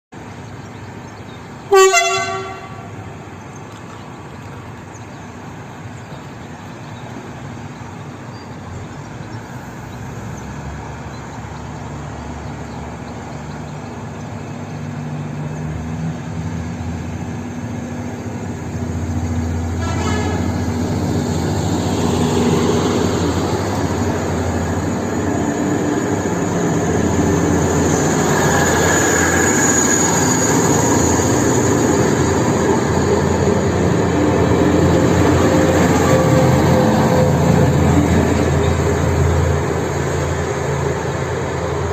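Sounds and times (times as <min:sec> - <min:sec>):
locomotive running rumble: 0:00.2 - 0:41.9
locomotive horn toot: 0:01.7 - 0:03.0, 0:19.7 - 0:20.6.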